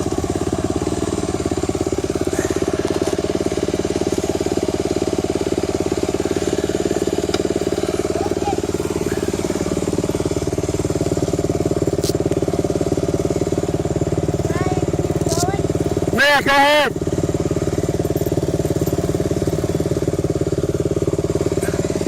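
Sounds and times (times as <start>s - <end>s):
dirt bike engine idling: 0.0s - 22.0s.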